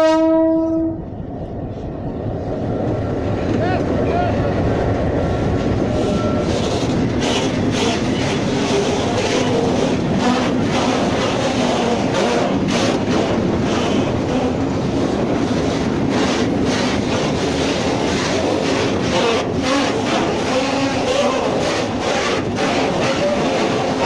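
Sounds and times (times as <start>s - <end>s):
steel wheels rattling on rails: 1.1s - 24.0s
faint wavering squeal: 5.3s - 6.5s.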